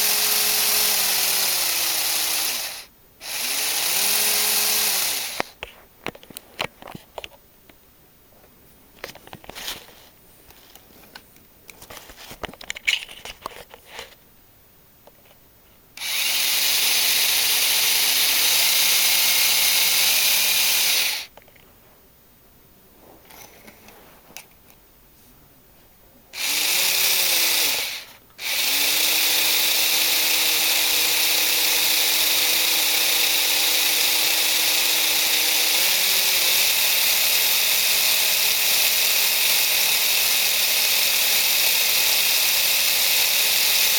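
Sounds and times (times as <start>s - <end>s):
small electric motors whirring: 0.0s - 5.6s, 16.0s - 21.3s, 26.4s - 43.9s.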